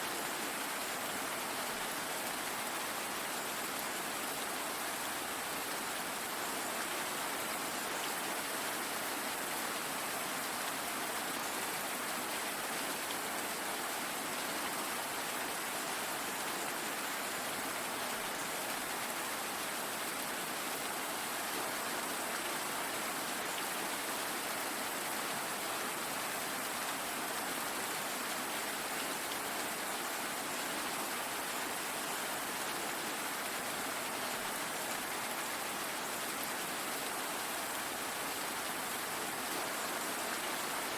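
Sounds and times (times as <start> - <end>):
steady rain hissing: 0.0 - 40.9.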